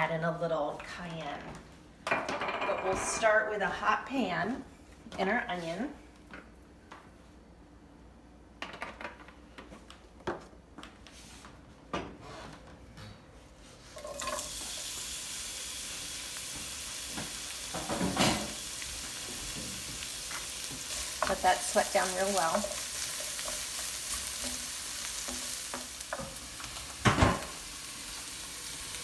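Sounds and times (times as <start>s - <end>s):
onion sizzling in a pan: 14.0s - 29.0s
kitchen utensils clinking: 17.7s - 18.6s.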